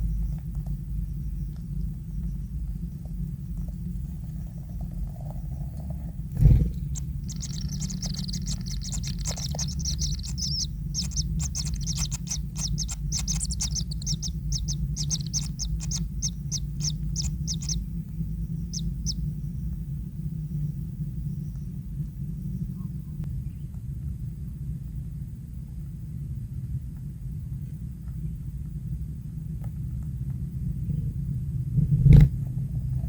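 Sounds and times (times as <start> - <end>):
steady low rumble: 0.0 - 33.0
kingfisher chirping: 6.4 - 19.4.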